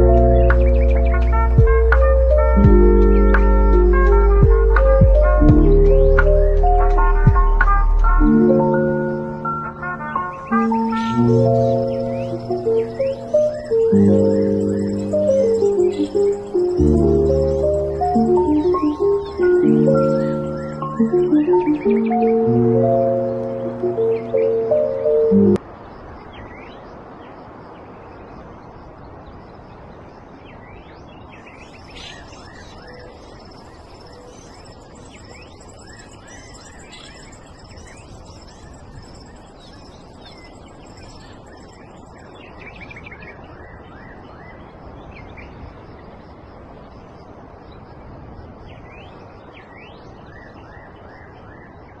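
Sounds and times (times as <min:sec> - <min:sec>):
birds chirping and calling: 0:00.0 - 0:07.0, 0:08.5 - 0:25.4, 0:31.3 - 0:43.9
low background hiss: 0:00.0 - 0:51.1
high piping birdsong: 0:00.0 - 0:52.0.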